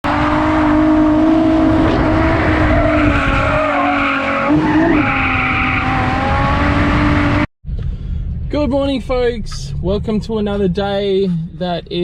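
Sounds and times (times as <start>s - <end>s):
car engine at high revs: 0.0s - 7.5s.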